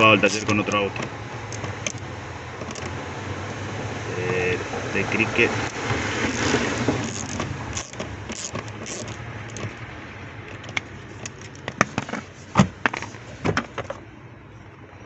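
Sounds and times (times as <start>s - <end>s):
clicks and knocks of parts handled: 10.5s - 14.0s.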